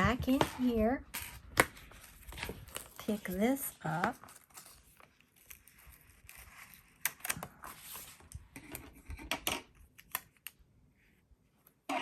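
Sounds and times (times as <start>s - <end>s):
paper rustling: 1.6s - 9.0s.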